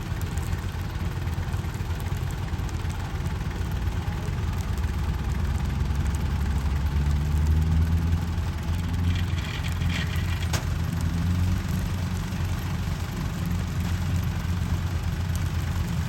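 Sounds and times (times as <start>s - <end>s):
diesel engine running: 0.0s - 16.0s
higher rattle: 8.8s - 10.8s.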